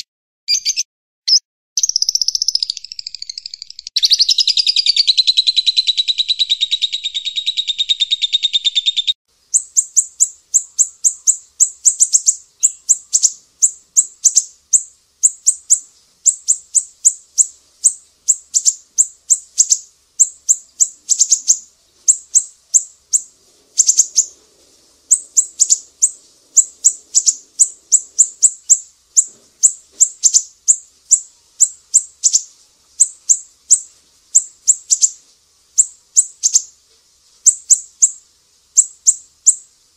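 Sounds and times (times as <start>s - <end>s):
buzzy bird trill: 0.0s - 36.8s, 37.4s - 39.7s
high thin bird chips: 9.6s - 39.7s.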